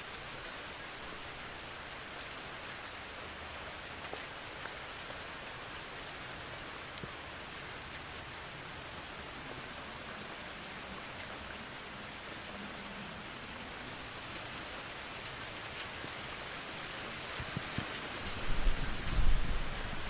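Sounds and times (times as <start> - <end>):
heavy rain hissing: 5.2 - 20.0.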